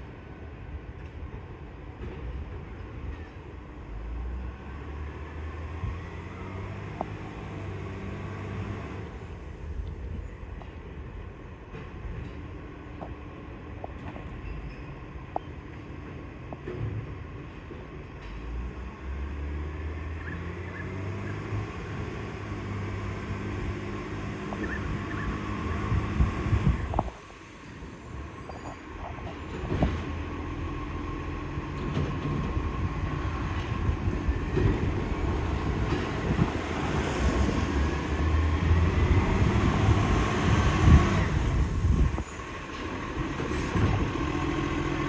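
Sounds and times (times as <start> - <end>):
diesel engine running: 38.4 - 45.0.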